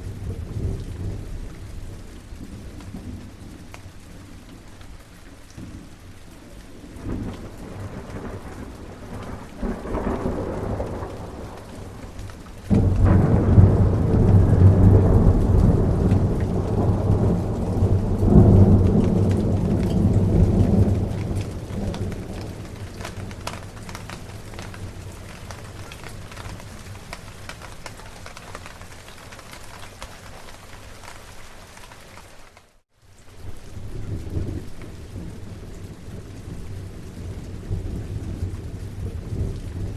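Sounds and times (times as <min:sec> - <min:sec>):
steady rain: 0:00.0 - 0:39.9
thunder rumbling: 0:05.6 - 0:30.0.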